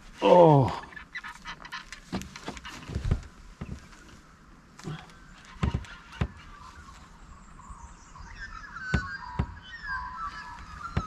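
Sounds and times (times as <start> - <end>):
birds chirping and calling: 0.0 - 11.0
sharp knocks: 5.5 - 6.4, 8.9 - 9.6.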